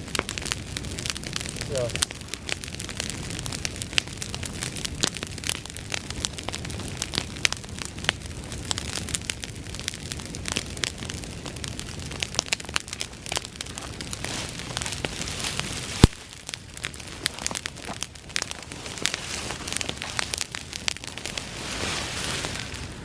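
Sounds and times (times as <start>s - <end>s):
bonfire crackling: 0.0s - 23.0s
loud fire pop: 15.8s - 16.6s.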